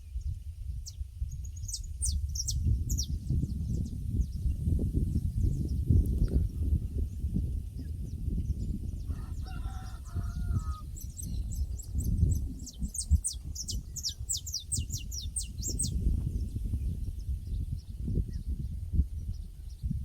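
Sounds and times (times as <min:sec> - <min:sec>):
small bird singing: 0:00.0 - 0:20.0
distant rooster crowing: 0:09.1 - 0:11.0.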